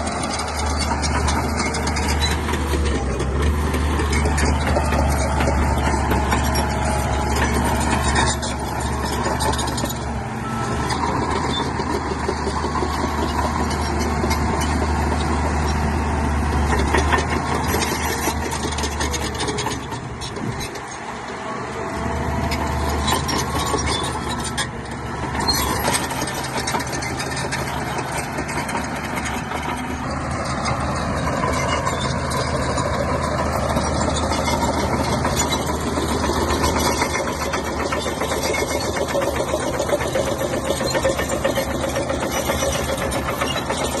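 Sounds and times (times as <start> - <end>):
bulldozer diesel engine running: 0.0 - 44.0
fine mechanical clatter: 25.4 - 44.0.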